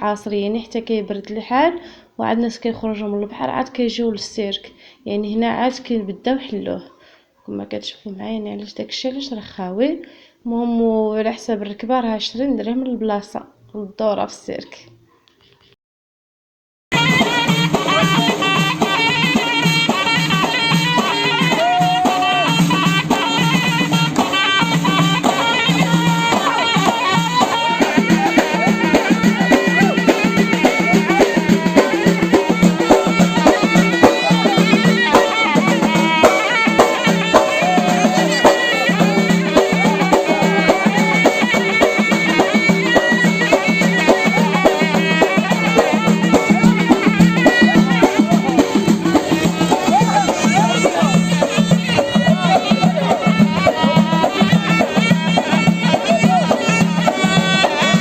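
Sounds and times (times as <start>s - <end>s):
folk music with driving beat: 16.9s - 58.0s.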